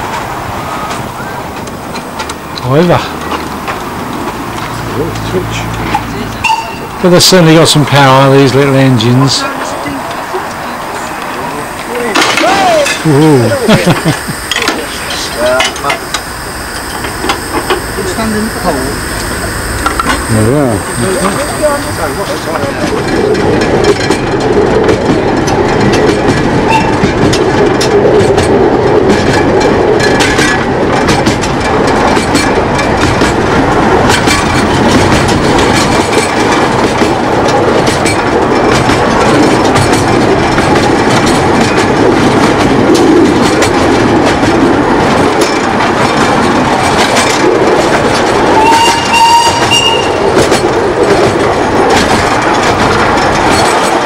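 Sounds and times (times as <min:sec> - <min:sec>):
miniature train running: 0:00.0 - 0:54.0
wheels clicking over rail joints: 0:00.0 - 0:54.0
train whistle: 0:10.9 - 0:23.0, 0:26.6 - 0:27.1, 0:48.5 - 0:50.4.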